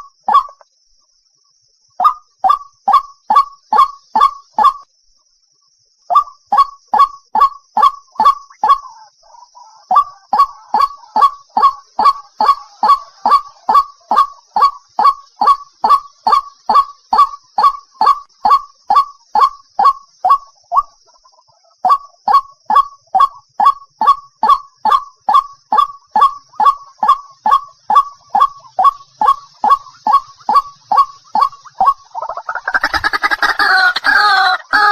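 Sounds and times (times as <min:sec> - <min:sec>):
bird calling sharp notes: 0:09.6 - 0:21.0, 0:21.8 - 0:34.9.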